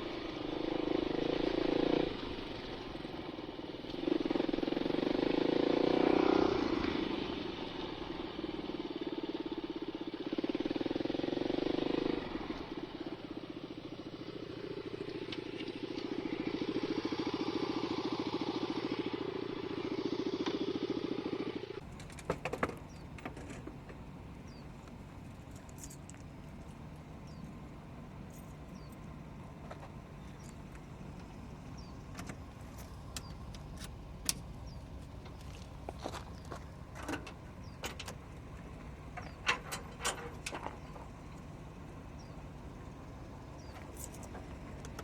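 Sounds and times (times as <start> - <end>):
dirt bike engine revving: 0.0 - 21.8
sharp clicks and knocks: 21.8 - 24.0, 32.1 - 41.5.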